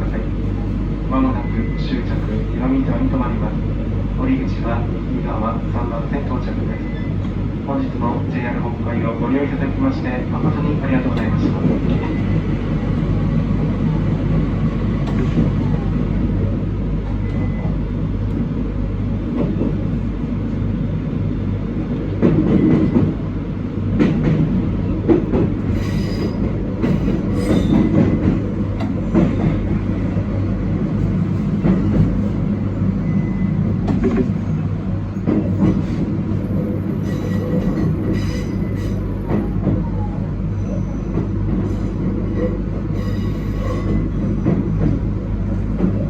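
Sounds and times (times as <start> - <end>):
train rumbling on rails: 0.0 - 46.0
rail joint clicks and knocks: 10.0 - 15.8, 16.5 - 20.6, 21.8 - 46.0.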